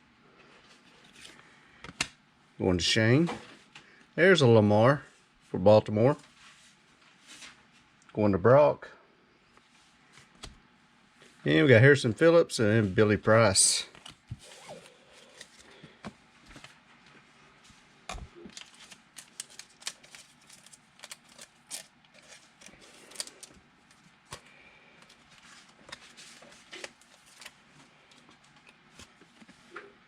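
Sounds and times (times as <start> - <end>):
trading cards clicking and rustling: 13.9 - 16.7, 18.4 - 27.6.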